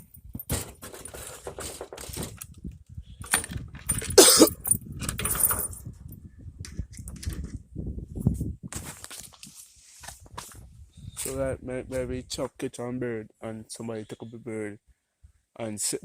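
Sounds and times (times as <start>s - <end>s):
rustling and clinking handling: 0.0s - 2.6s, 3.2s - 7.6s.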